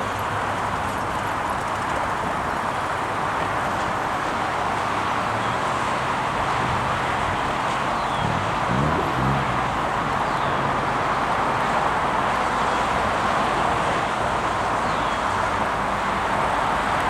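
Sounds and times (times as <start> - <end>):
rushing vehicle noise: 0.0 - 17.0
engine note rising: 7.8 - 11.5.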